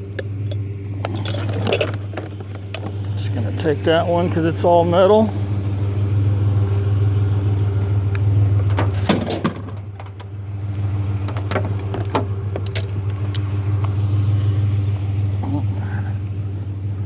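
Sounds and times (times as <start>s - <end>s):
metallic clanks and rattles: 0.0s - 3.4s, 8.5s - 13.4s
truck engine idling: 0.0s - 17.0s
single knocks: 8.6s - 13.1s.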